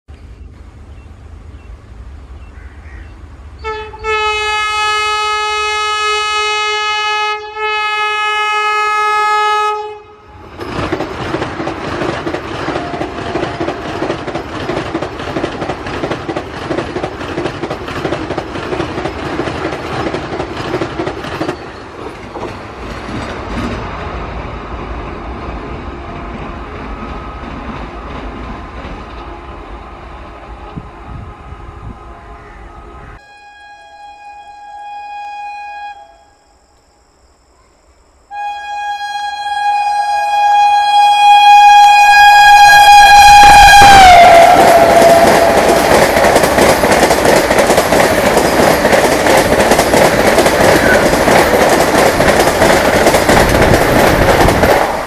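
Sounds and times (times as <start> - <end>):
electric train horn blasts: 3.6 - 10.5, 29.1 - 36.8, 38.3 - 46.1
train wheels clattering over rail joints: 10.5 - 24.0, 44.4 - 55.0.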